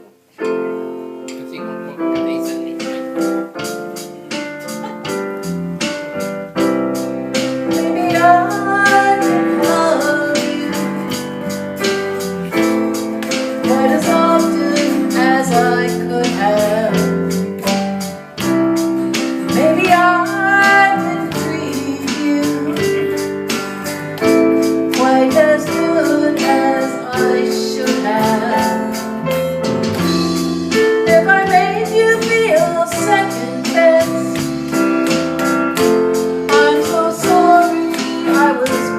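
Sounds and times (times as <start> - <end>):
electric piano chords: 0.0 - 38.9
rhythm guitar: 0.0 - 38.9
bass guitar: 2.0 - 38.9
drums: 2.0 - 38.9
woman singing: 7.7 - 11.4, 13.5 - 17.3, 19.4 - 23.3, 24.9 - 29.1, 30.7 - 34.6, 36.4 - 38.9.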